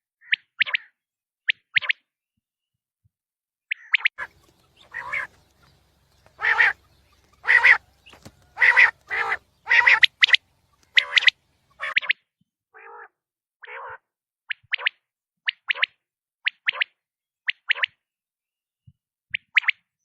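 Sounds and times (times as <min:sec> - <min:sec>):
quail calling: 0:03.8 - 0:12.2.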